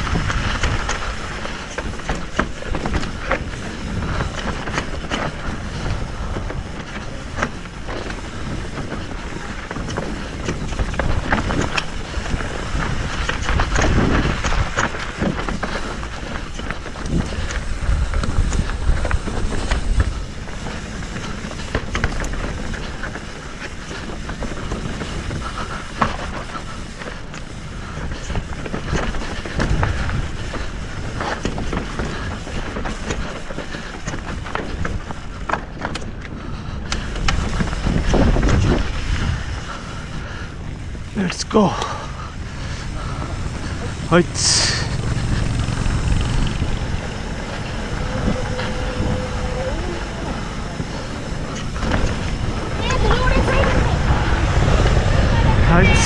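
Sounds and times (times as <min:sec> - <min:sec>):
bike rattling: 0:00.0 - 0:56.0
tyres rolling over gravel: 0:00.0 - 0:56.0
wind buffeting microphone: 0:00.0 - 0:56.0.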